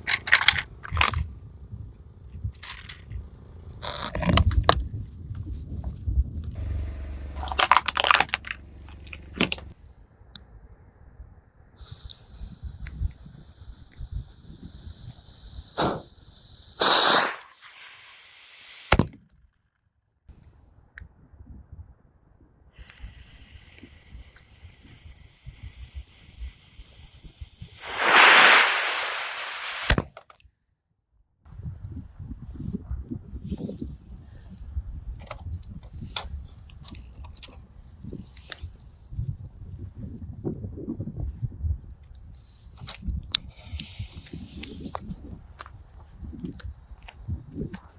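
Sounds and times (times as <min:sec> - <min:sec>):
low rumble of car: 0:04.6 - 0:11.6
steady high hiss: 0:11.8 - 0:18.9, 0:23.2 - 0:30.0
sharp snap: 0:15.7 - 0:16.1, 0:16.8 - 0:18.0, 0:27.8 - 0:30.0.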